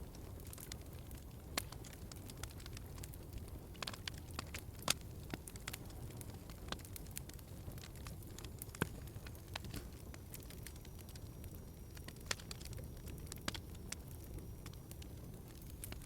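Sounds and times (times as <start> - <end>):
low rumble of fire: 0.0 - 16.0
wood fire crackling: 0.0 - 16.0
sharp pops of fire: 0.1 - 11.2.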